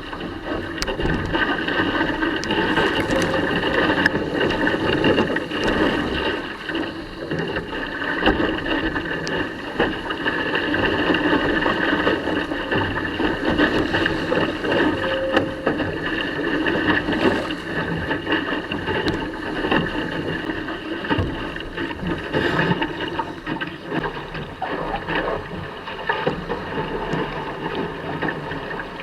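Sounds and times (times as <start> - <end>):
water splashing along hull: 0.0 - 29.0
rigging clicks: 0.7 - 18.0.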